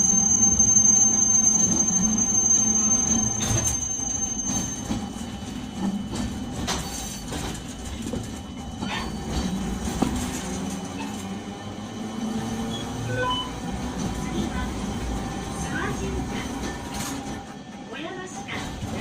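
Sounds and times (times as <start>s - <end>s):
wheel squeal: 0.0s - 7.3s, 8.7s - 11.3s, 12.4s - 13.8s
streetcar running: 0.0s - 19.0s.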